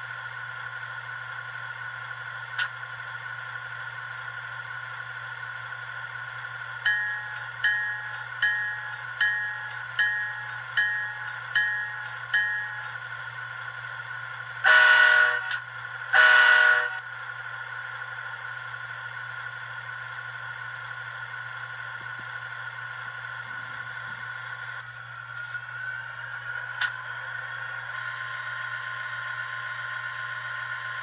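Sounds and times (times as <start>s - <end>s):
model train diesel engine drone: 0.0s - 31.0s
model train bell ringing: 6.8s - 13.0s
model train horn blasts: 14.6s - 17.1s.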